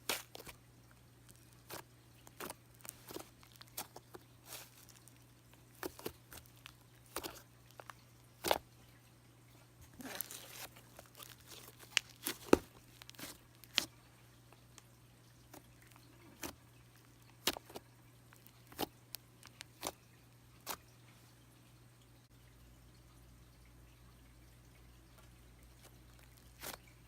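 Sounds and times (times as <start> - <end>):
slime being squished by hand: 0.0 - 0.6, 1.3 - 8.6, 10.0 - 13.9, 17.2 - 20.0, 25.8 - 26.9.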